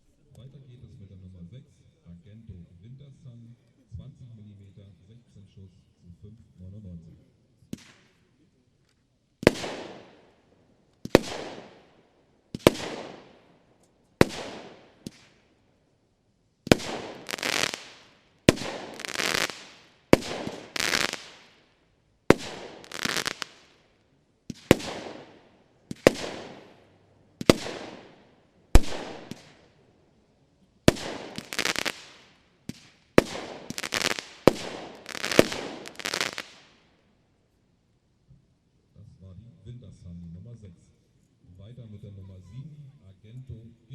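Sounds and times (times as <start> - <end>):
firework shots with hiss: 7.7 - 8.3, 9.4 - 10.4, 11.0 - 13.5, 14.2 - 15.6, 16.6 - 29.8, 30.8 - 37.0.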